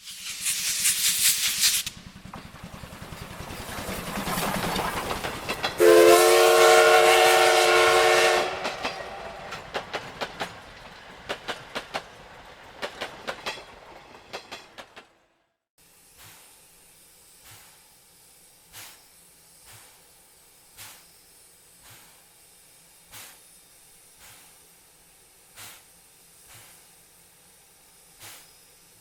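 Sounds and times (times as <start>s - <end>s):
steam hiss: 0.0s - 14.9s, 15.8s - 29.0s
steam locomotive chuffing: 0.0s - 15.3s, 16.0s - 29.0s
wheel clicks over rail joints: 2.2s - 5.8s, 8.5s - 15.1s
locomotive whistle blast: 5.8s - 9.6s.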